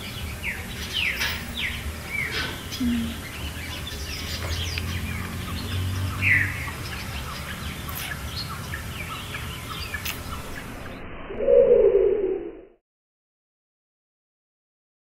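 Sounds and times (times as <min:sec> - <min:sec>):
small birds chirping: 0:00.0 - 0:11.1
low rumble: 0:10.4 - 0:12.8.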